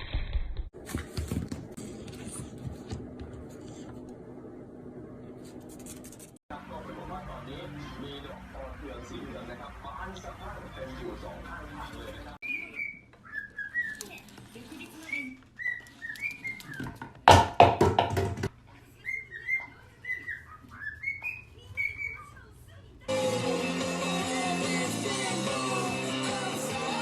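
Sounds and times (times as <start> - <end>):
parrot whistled chirps: 12.4 - 14.1, 15.0 - 16.9, 19.0 - 22.3.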